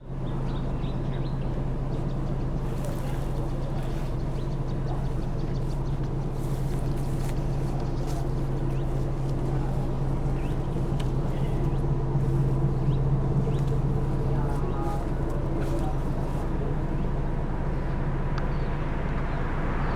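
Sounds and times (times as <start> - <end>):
bus engine idling: 0.0 - 19.9.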